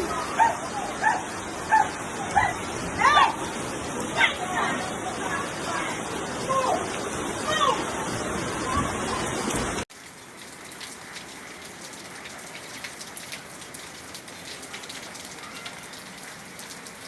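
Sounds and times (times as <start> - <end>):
loud rush of water: 0.0 - 17.0
rain drops on hard surface: 0.0 - 17.0.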